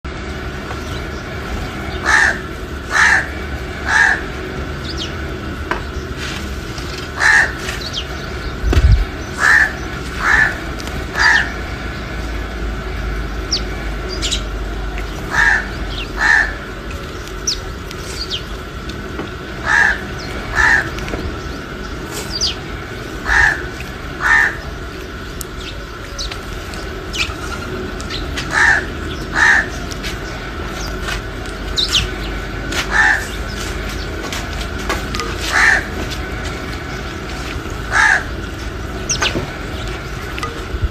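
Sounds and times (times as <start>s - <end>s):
crow cawing: 2.0s - 4.4s, 7.2s - 7.7s, 9.4s - 11.6s, 15.3s - 16.7s, 19.6s - 21.1s, 23.2s - 24.8s, 28.4s - 29.8s, 32.7s - 33.5s, 35.4s - 36.1s, 37.8s - 38.5s.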